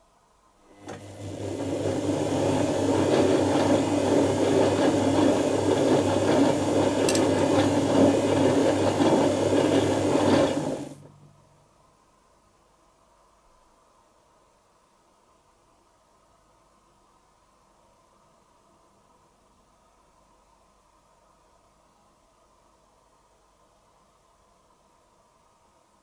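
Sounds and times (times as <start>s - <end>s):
washing machine motor hum: 0.6s - 11.6s
laundry and water churning: 0.8s - 11.0s.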